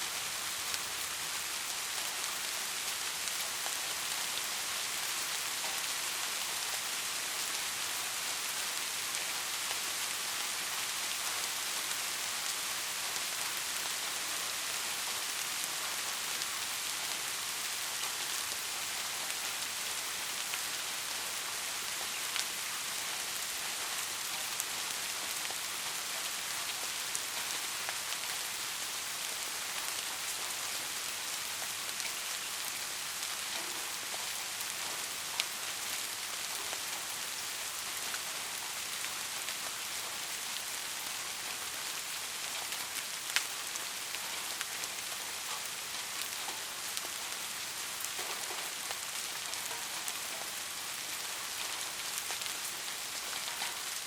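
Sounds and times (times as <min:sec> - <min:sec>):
steady rain hissing: 0:00.0 - 0:54.0.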